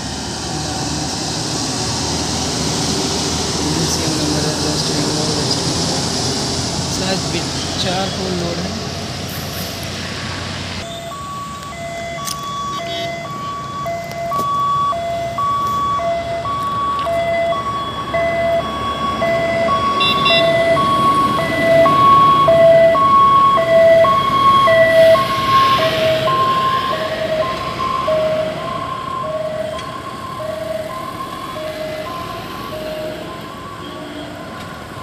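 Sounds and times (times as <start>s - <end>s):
vehicle passing: 0.0s - 12.2s, 14.6s - 35.0s
road traffic noise: 0.0s - 35.0s
two-pitch electronic warning beeps: 10.8s - 21.9s.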